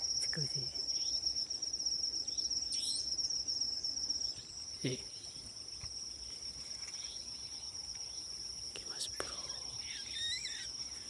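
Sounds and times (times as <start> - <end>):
crickets trilling: 0.0 - 11.0
short insect chirps: 0.0 - 11.0.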